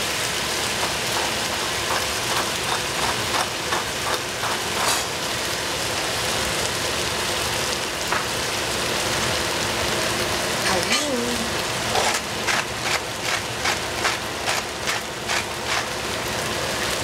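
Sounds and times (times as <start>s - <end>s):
vegetables sizzling in oil: 0.0s - 17.0s
pepper mill grinding clicks: 12.0s - 15.8s.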